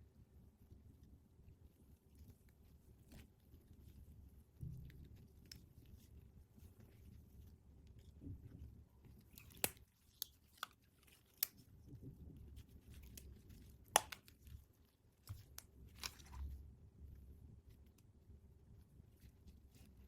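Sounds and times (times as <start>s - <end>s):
packaging clicks and crinkles: 12.9s - 14.6s, 15.3s - 16.5s.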